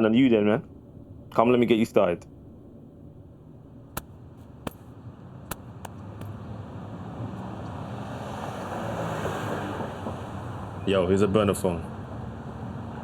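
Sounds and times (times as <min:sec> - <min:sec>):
car engine and tyre noise: 0:04.0 - 0:10.8.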